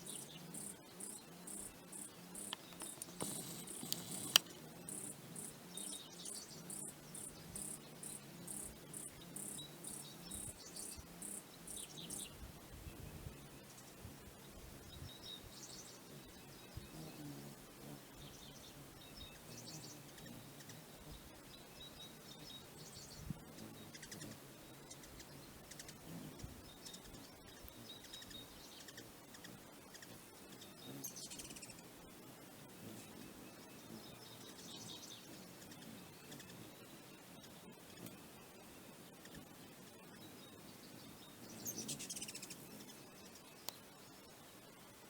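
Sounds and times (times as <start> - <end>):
birds chirping: 0.0 - 12.3, 33.0 - 44.2
sharp click: 2.5 - 4.6.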